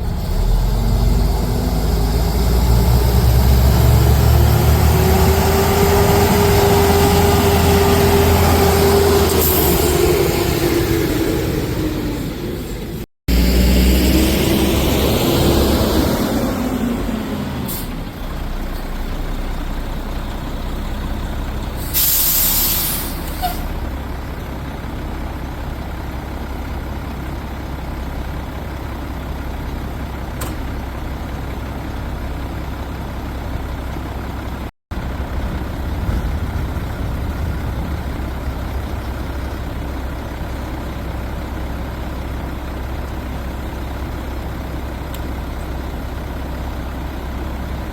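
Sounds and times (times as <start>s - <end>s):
garbage truck diesel rumble: 0.0s - 47.9s
air brakes hissing: 9.2s - 10.3s, 17.6s - 18.1s, 21.8s - 23.8s.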